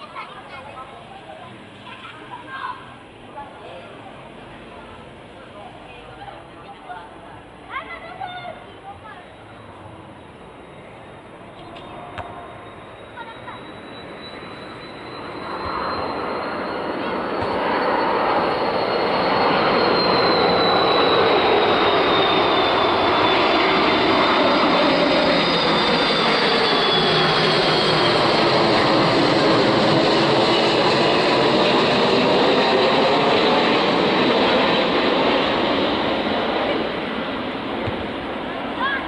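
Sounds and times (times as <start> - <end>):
jet airliner engine noise: 6.8 - 39.0
high engine whine: 8.9 - 39.0.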